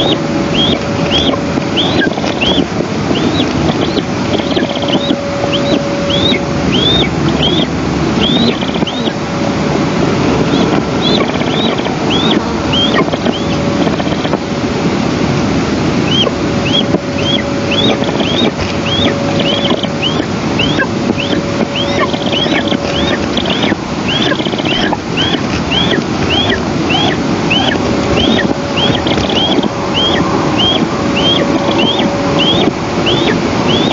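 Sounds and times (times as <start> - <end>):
bird high thin call: 0.0 - 9.2, 16.1 - 33.9
wind buffeting microphone: 0.0 - 33.9.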